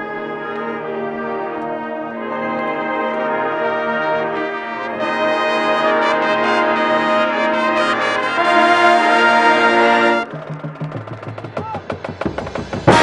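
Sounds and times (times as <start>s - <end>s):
brass band playing chords: 0.0s - 13.0s.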